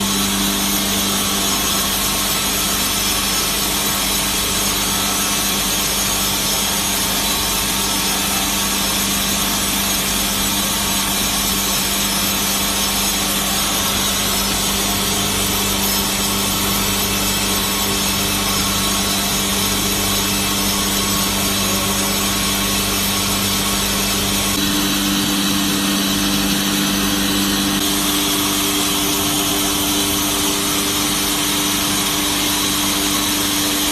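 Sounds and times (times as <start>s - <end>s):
low machine hum: 0.0s - 3.9s, 12.7s - 33.8s
band saw running: 0.0s - 33.9s.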